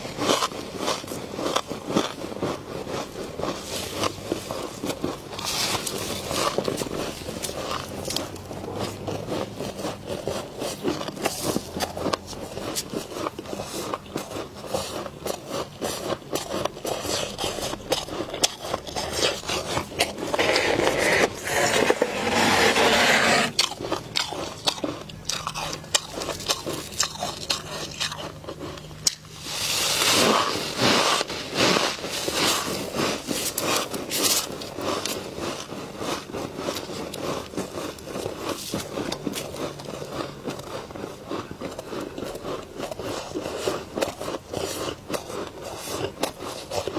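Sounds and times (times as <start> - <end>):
frost being scraped: 14.7 - 24.5, 29.4 - 40.1.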